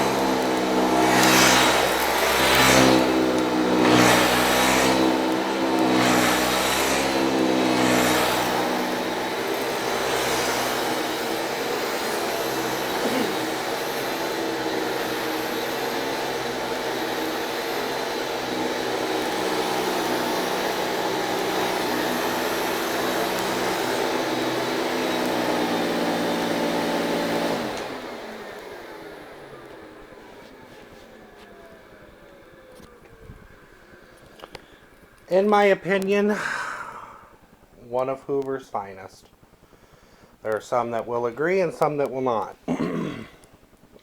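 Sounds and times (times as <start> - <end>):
vacuum motor winding down: 0.0 - 37.8, 39.2 - 44.0
vacuum cleaner running: 0.0 - 44.0.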